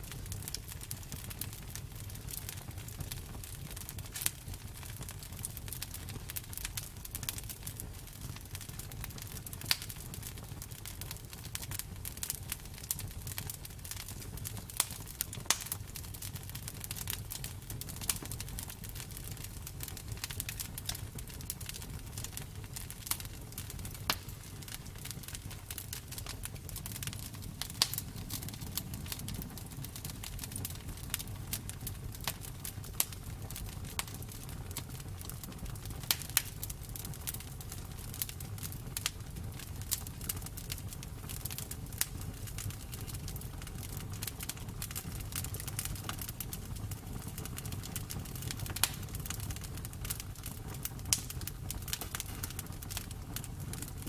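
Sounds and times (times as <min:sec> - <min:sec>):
burning wood crackling: 0:00.0 - 0:54.0
campfire burning: 0:00.0 - 0:54.0.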